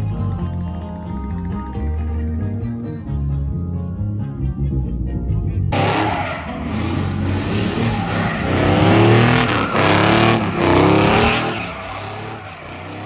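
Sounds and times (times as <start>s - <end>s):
truck engine revving: 5.7s - 13.0s.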